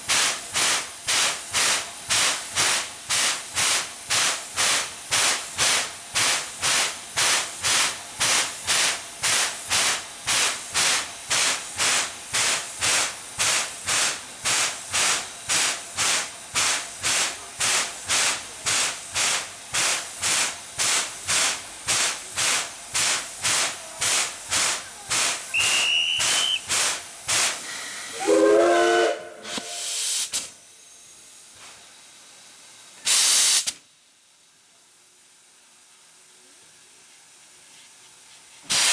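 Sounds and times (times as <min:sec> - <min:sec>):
loud burst of hiss: 0:00.0 - 0:31.9, 0:33.0 - 0:33.9, 0:38.6 - 0:38.9
steam locomotive exhaust chuffing: 0:00.0 - 0:33.8
whistle-like tone: 0:25.5 - 0:26.7.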